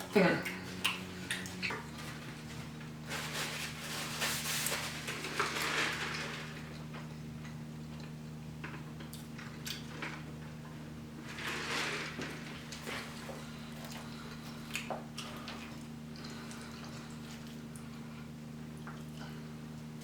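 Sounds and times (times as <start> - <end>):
steady low hum: 0.0 - 20.0
wet chewing and smacking: 0.4 - 2.2.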